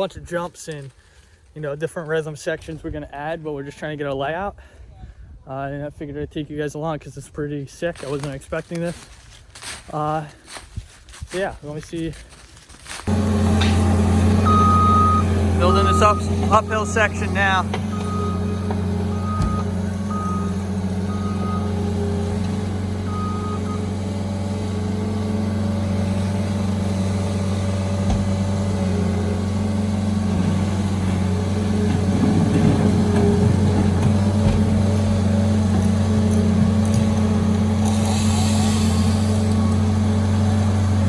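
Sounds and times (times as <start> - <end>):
heavy machine engine running: 13.1 - 41.0
reversing alarm beeping: 14.3 - 21.9, 23.0 - 23.9.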